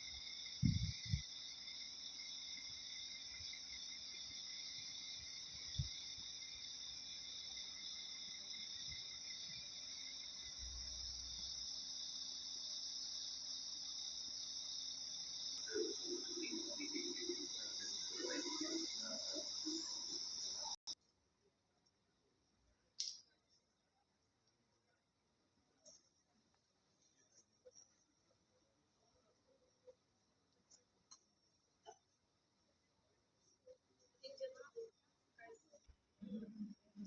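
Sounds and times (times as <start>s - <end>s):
insect chirring: 0.0s - 21.0s
faint irregular chatter: 33.5s - 37.0s.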